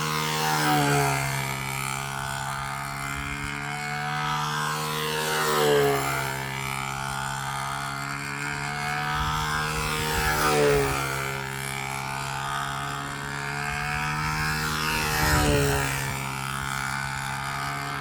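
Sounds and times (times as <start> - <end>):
model aircraft motor drone: 0.0 - 18.0.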